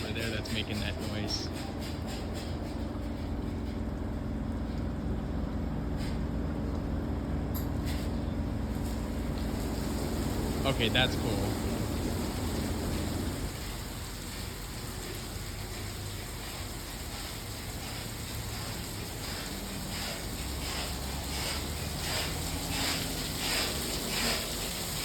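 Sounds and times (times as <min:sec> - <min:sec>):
car wash water spray hissing: 0:08.6 - 0:25.0.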